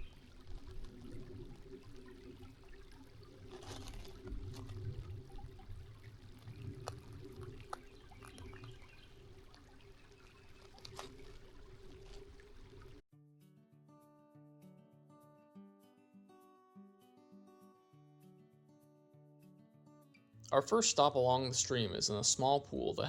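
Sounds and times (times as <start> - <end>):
creek trickling over stones: 0.0 - 13.0.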